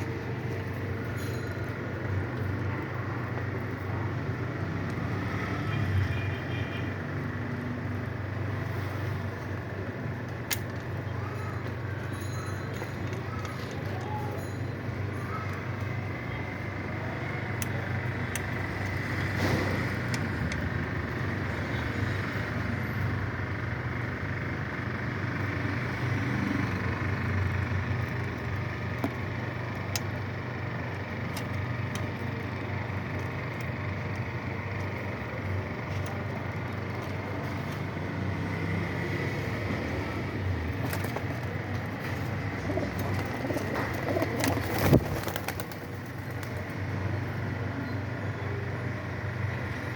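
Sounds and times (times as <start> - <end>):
pigeons cooing: 42.0 - 46.5.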